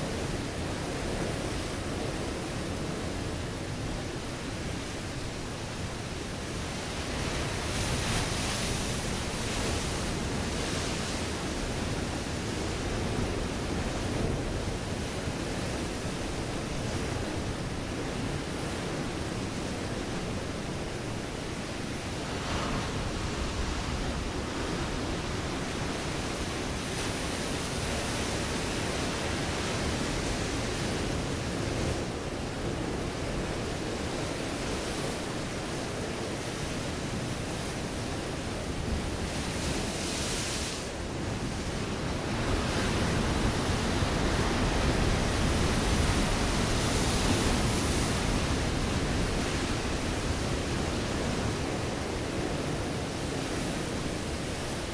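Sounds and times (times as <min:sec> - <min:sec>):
waves breaking on rocky shore: 0:00.0 - 0:54.9.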